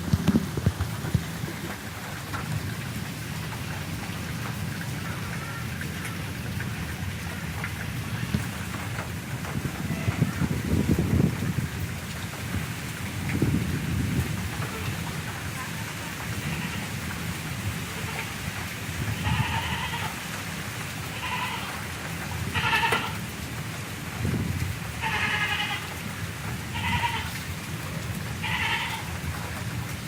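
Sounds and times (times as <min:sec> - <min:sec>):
steady rain: 0:00.0 - 0:30.0.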